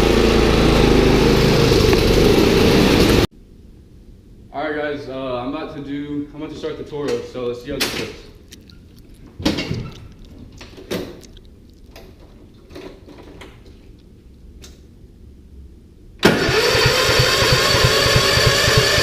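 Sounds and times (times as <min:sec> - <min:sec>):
lawn mower engine running: 0:00.0 - 0:03.3, 0:16.2 - 0:19.0.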